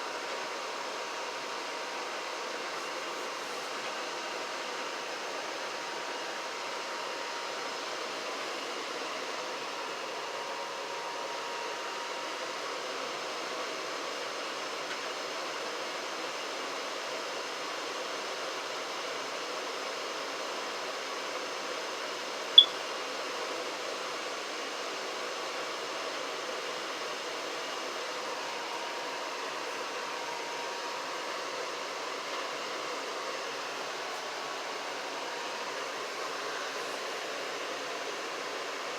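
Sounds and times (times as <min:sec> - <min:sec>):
short high-pitched chirp: 0:22.6 - 0:22.8.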